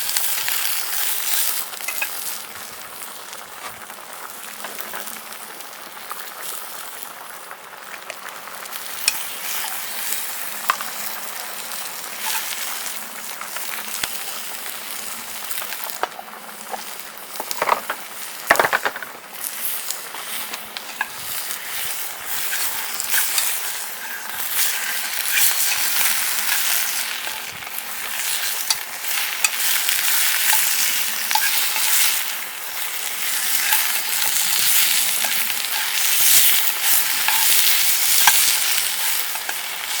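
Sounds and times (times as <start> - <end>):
food sizzling in a pan: 0.0 - 40.0
utensil scraping pan: 16.0 - 40.0.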